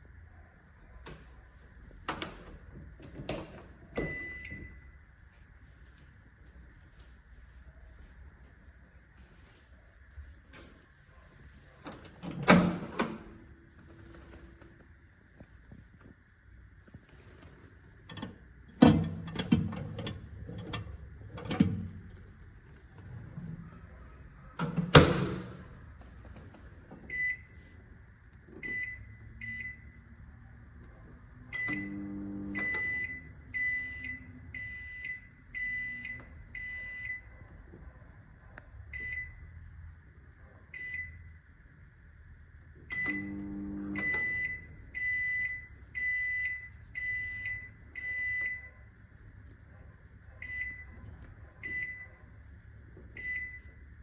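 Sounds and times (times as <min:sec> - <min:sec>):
microwave control panel beeping: 0:03.3 - 0:05.0, 0:27.1 - 0:27.6, 0:28.6 - 0:30.0, 0:31.5 - 0:37.3, 0:38.9 - 0:39.4, 0:42.9 - 0:48.8, 0:50.4 - 0:52.2, 0:53.1 - 0:54.0.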